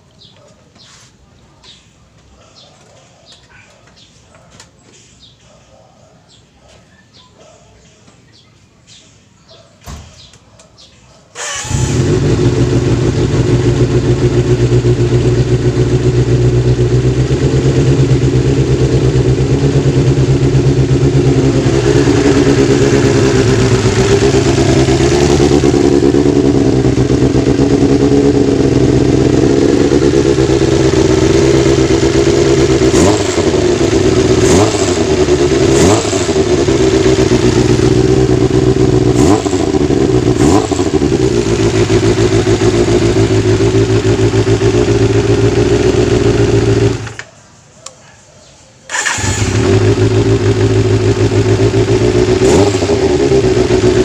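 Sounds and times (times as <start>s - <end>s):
motorcycle engine idling: 11.6s - 47.2s, 48.9s - 54.0s.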